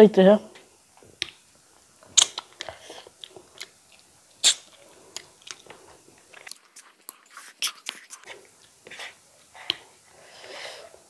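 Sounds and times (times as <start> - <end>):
wet chewing mouth smacks: 2.2 - 8.3.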